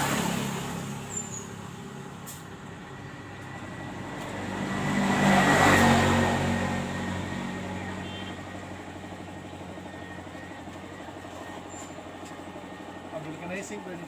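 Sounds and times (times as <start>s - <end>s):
vehicle passing by: 0.0s - 2.3s, 2.9s - 8.0s
engine running steadily: 0.0s - 14.0s.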